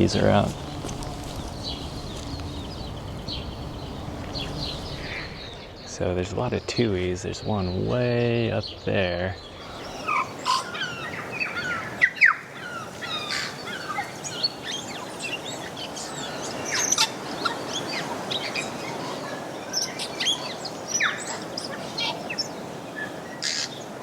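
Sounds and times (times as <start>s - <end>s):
birdsong with whistles and chirps: 0.0s - 23.9s
small birds calling: 0.0s - 24.0s.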